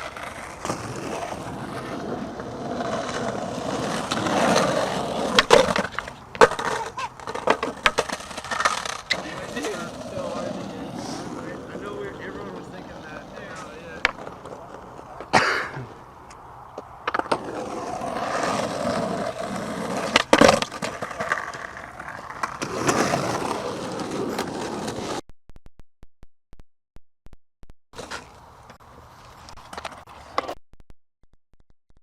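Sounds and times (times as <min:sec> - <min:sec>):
skateboard impacts: 0:00.0 - 0:15.9, 0:16.7 - 0:25.2
skateboard wheels rolling on concrete: 0:00.0 - 0:25.2, 0:28.0 - 0:30.6.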